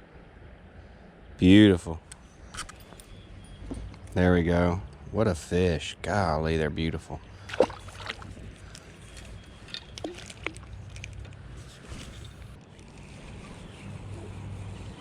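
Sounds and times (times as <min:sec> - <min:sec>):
wind: 0:00.0 - 0:15.0
river water rumbling: 0:07.0 - 0:11.6.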